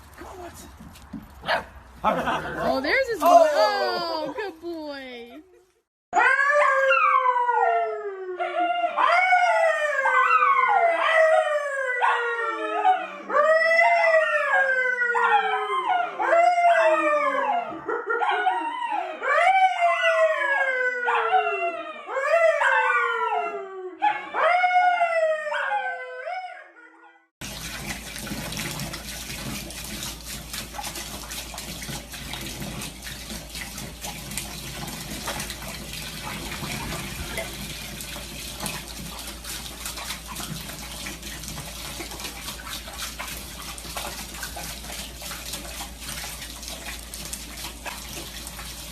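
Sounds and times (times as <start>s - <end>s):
dog howling: 6.2s - 27.0s.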